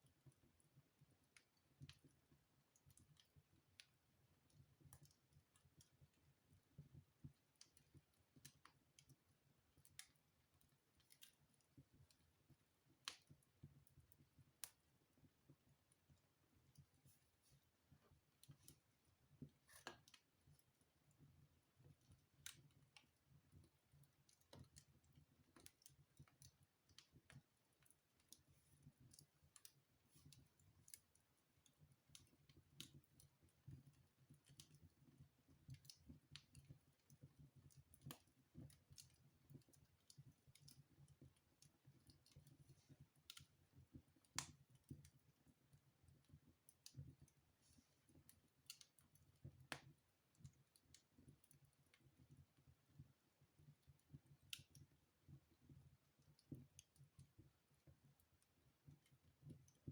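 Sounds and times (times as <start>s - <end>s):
fire crackling in fireplace: 0.0s - 59.9s.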